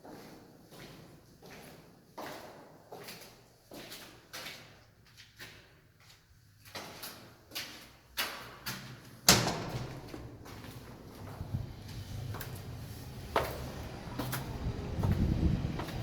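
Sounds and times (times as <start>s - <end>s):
footsteps on hard floor: 10.0s - 16.0s.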